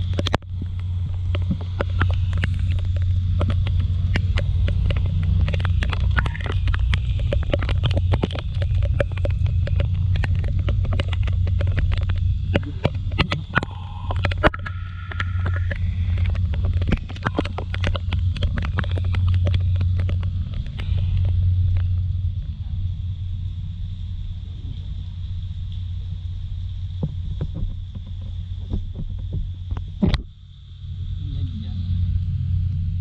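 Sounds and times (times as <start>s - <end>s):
raindrops tapping on camera: 0.0s - 22.0s, 26.9s - 30.3s
low rumble of wind and engine: 0.0s - 33.0s.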